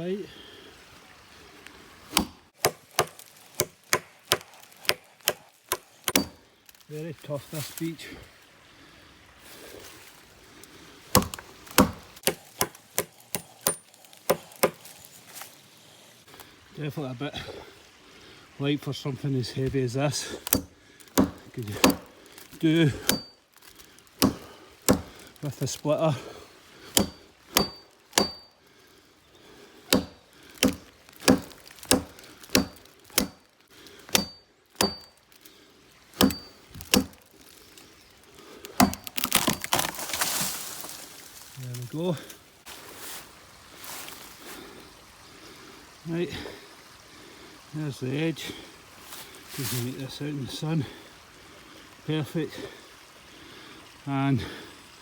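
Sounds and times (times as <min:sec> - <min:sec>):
axe chopping wood: 0:02.1 - 0:06.4, 0:11.1 - 0:14.9, 0:20.4 - 0:22.1, 0:22.9 - 0:23.3, 0:24.2 - 0:25.2, 0:26.9 - 0:28.5, 0:29.9 - 0:33.4, 0:34.1 - 0:35.2, 0:36.2 - 0:37.2, 0:38.7 - 0:41.0
wood cracking and rustling: 0:02.1 - 0:08.0, 0:10.6 - 0:15.6, 0:19.6 - 0:26.0, 0:29.8 - 0:42.5.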